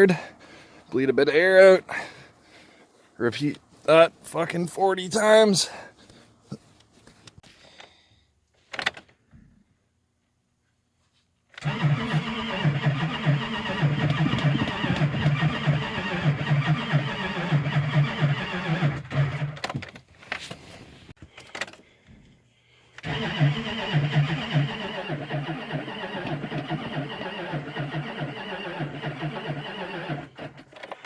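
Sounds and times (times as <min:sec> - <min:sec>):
diesel engine cranking: 0:11.6 - 0:19.8, 0:23.0 - 0:31.0.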